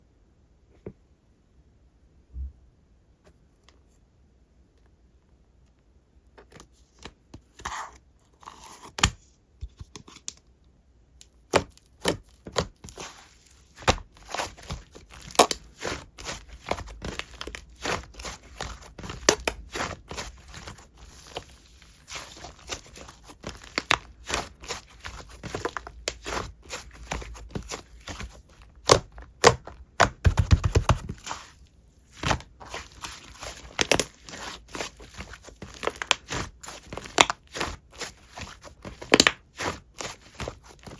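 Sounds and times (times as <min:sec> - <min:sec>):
slime squished by hand: 0:11.4 - 0:40.9.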